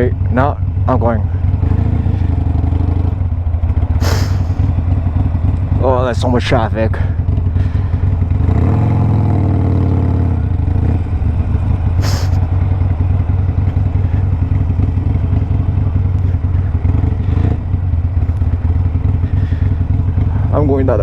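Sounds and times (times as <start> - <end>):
motorcycle engine running: 0.0 - 21.0
short hiss: 4.0 - 4.6, 12.0 - 12.4.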